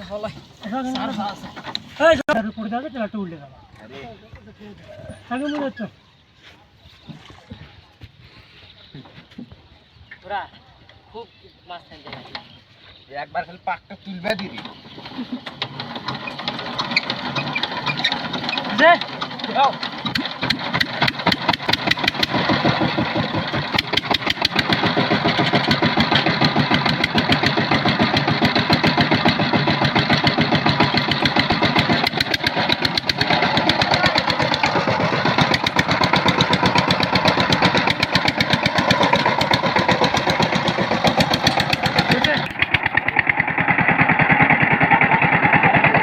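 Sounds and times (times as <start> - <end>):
power tiller diesel engine running: 14.3 - 46.0.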